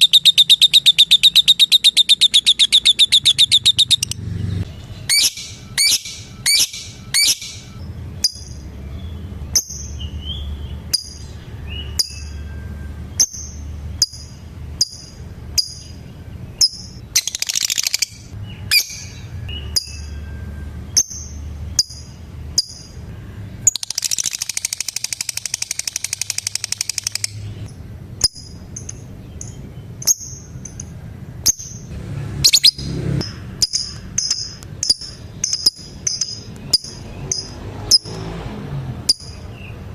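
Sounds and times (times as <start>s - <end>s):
buzzy chattering trills: 0.0s - 8.7s, 20.9s - 30.8s
lovebirds chirping: 0.0s - 12.5s, 14.8s - 20.2s, 22.6s - 38.2s
low hum: 18.1s - 37.9s.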